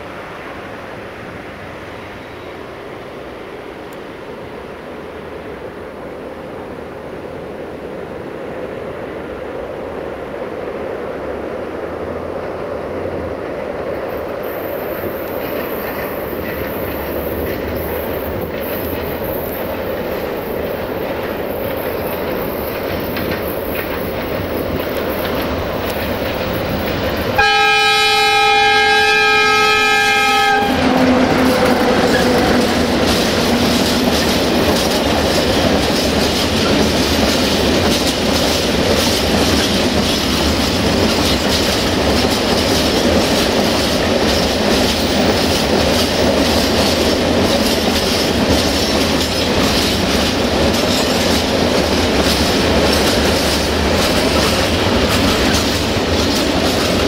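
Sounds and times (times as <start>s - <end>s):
diesel locomotive engine: 0.0s - 57.0s
wagons clickety-clack: 14.1s - 27.4s, 31.4s - 57.0s
locomotive horn blast: 27.4s - 32.8s.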